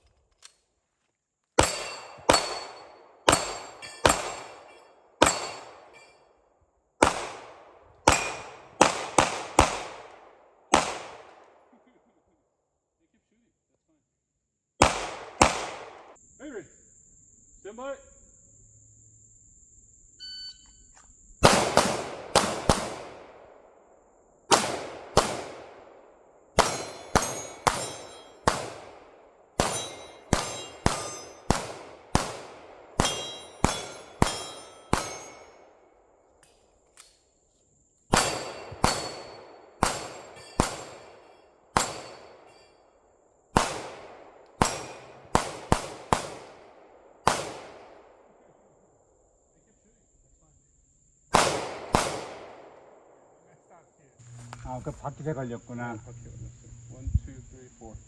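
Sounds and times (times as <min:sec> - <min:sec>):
pistol shots: 0:01.6 - 0:06.0, 0:07.0 - 0:11.7, 0:14.8 - 0:16.2, 0:21.4 - 0:23.7, 0:24.5 - 0:35.8, 0:38.1 - 0:42.6, 0:43.5 - 0:48.4, 0:51.3 - 0:53.2
steel targets ringing: 0:01.6 - 0:06.3, 0:08.1 - 0:08.6, 0:26.6 - 0:28.6, 0:29.6 - 0:31.6, 0:33.0 - 0:35.7, 0:38.1 - 0:42.8.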